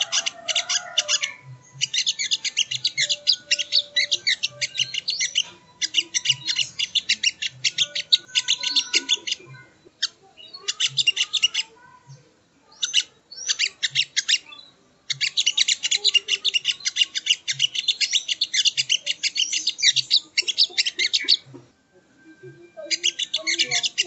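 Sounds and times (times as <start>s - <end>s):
bird song of high chipping notes: 0.0s - 21.6s, 22.5s - 24.0s.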